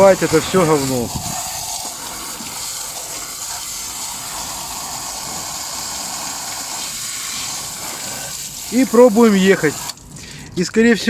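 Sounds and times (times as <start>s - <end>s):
water jet spraying: 0.0s - 10.0s.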